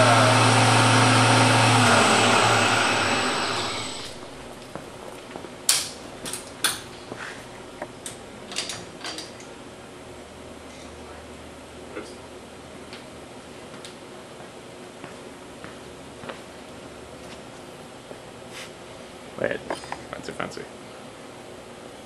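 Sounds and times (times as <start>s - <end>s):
electric motor humming and whining: 0.0s - 5.0s.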